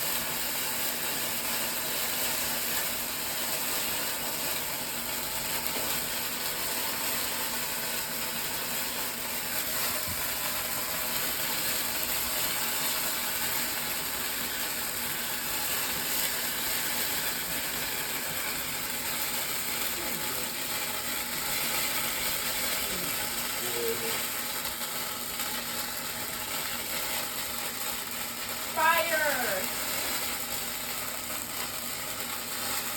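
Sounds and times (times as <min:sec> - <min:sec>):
chicken sizzling in a pan: 0:00.0 - 0:32.9.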